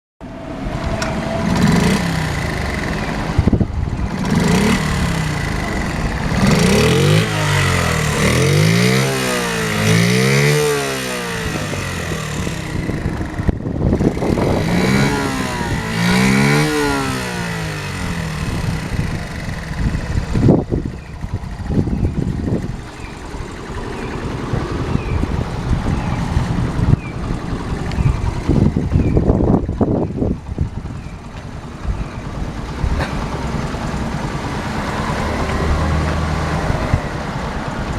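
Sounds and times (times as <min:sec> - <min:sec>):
small motorcycle engine revving: 0:00.7 - 0:37.3.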